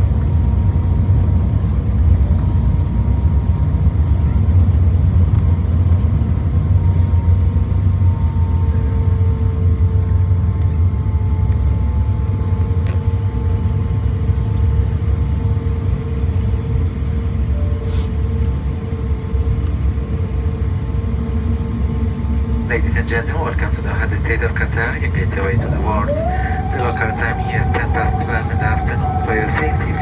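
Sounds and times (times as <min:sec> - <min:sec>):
aircraft cabin rumble: 0:11.9 - 0:30.0
faint steady whine: 0:20.0 - 0:30.0.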